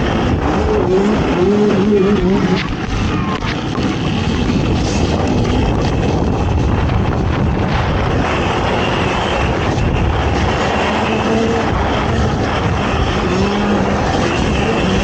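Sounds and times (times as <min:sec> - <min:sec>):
atv engine running hard: 0:00.0 - 0:15.0
wind noise on microphone: 0:00.0 - 0:15.0.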